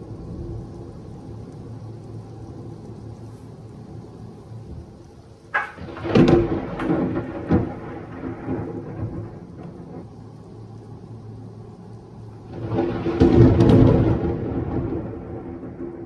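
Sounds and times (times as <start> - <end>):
steady rain: 0.0 - 16.0
close thunder cracking: 5.6 - 10.1, 12.5 - 16.0.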